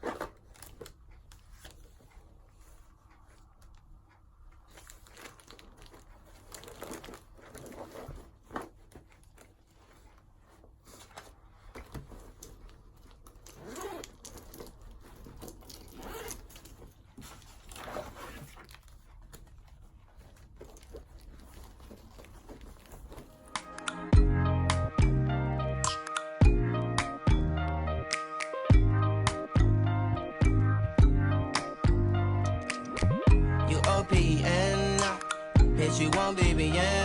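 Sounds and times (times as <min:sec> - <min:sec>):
paper rustling and scraping: 0:00.0 - 0:02.9, 0:04.7 - 0:23.7.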